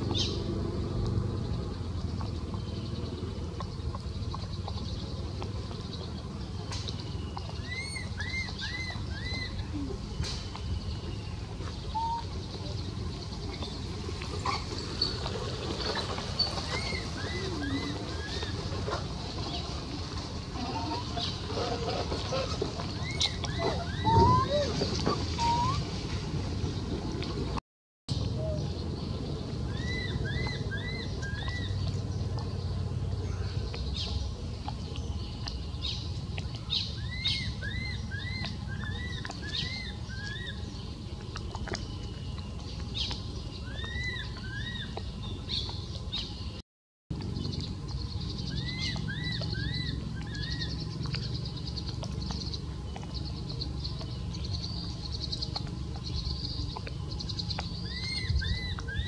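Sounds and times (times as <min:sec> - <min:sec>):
steady low rumble: 0:09.0 - 0:59.0
bird singing whistled phrase: 0:23.1 - 0:24.8, 0:25.4 - 0:25.9.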